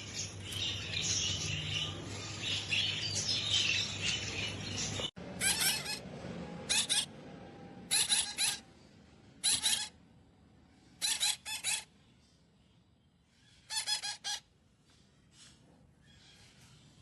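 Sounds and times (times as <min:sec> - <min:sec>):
parrot squawking: 0:05.3 - 0:07.1, 0:07.9 - 0:08.7, 0:09.4 - 0:10.0, 0:11.0 - 0:11.9, 0:13.6 - 0:14.5.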